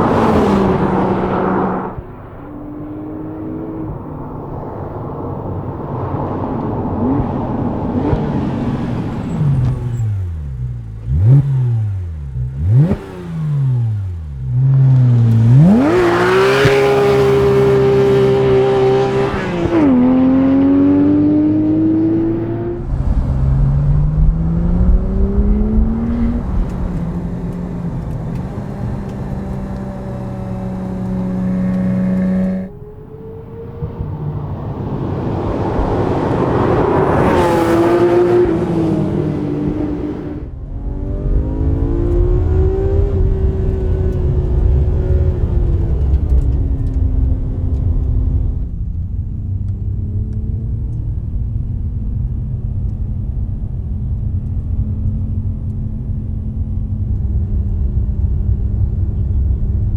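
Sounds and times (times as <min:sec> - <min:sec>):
car engine revving hard: 0:00.0 - 0:04.0, 0:06.6 - 0:45.5.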